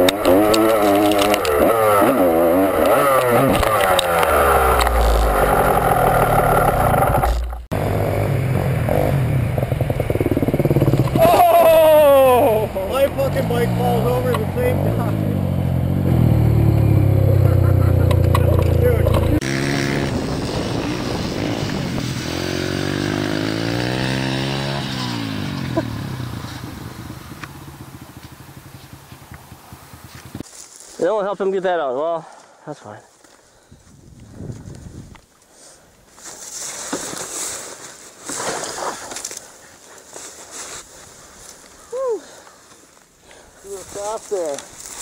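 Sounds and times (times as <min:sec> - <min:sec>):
dirt bike engine rumbling: 0:00.0 - 0:30.5.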